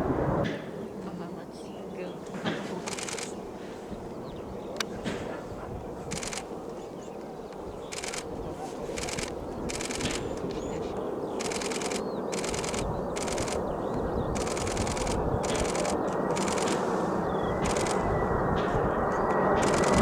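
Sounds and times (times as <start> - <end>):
jet engines rushing: 0.0 - 20.0
camera shutter bursts: 2.8 - 3.4, 6.1 - 6.5, 7.9 - 8.3, 9.0 - 10.5, 11.4 - 13.7, 14.4 - 16.9, 17.6 - 18.1, 19.6 - 20.0.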